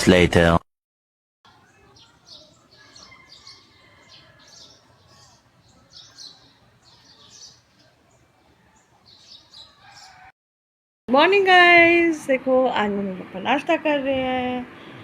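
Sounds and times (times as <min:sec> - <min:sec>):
small birds chirping: 0:01.5 - 0:10.3.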